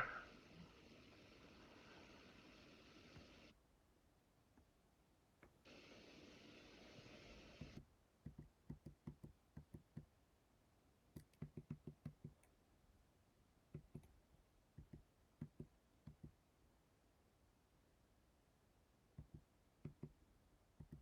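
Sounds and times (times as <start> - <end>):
steady hiss: 0.0 - 3.6, 5.6 - 7.8.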